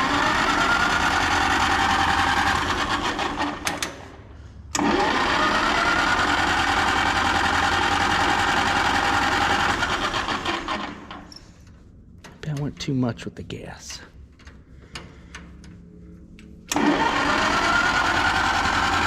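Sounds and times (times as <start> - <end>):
electric starter cranking engine: 0.0 - 11.4, 16.6 - 19.0.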